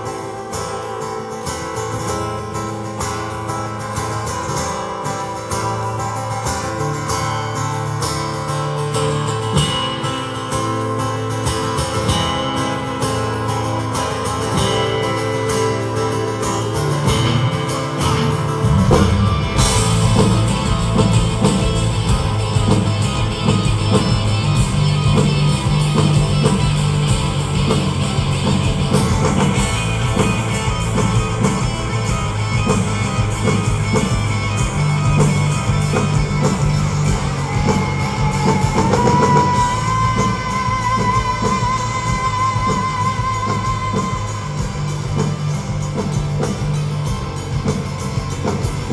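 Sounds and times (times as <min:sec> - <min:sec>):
live rock band playing: 0:00.0 - 0:48.9
person singing: 0:37.6 - 0:45.0.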